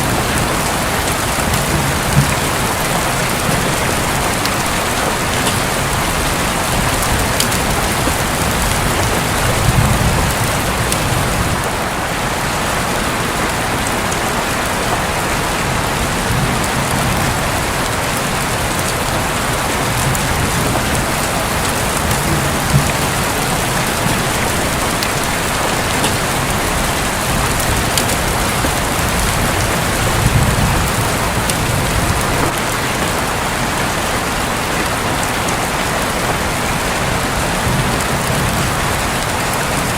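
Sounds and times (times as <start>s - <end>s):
low thunder rumbles: 0.0s - 12.4s, 15.1s - 32.6s
rain falling on a roof: 0.0s - 39.9s.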